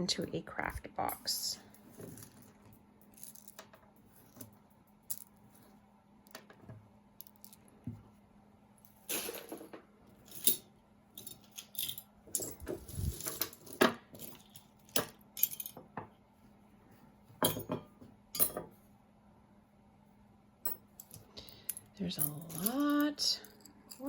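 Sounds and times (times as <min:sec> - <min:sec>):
jewelry clinking and jangling: 0:01.0 - 0:05.6, 0:08.8 - 0:15.8, 0:20.7 - 0:24.0.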